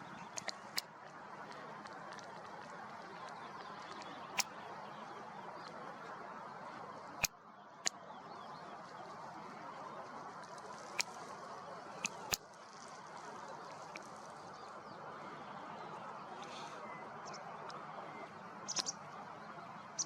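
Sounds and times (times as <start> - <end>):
faint bird chirps: 0.0 - 20.0
sharp clicks: 0.2 - 4.6, 10.4 - 11.4, 12.0 - 13.0.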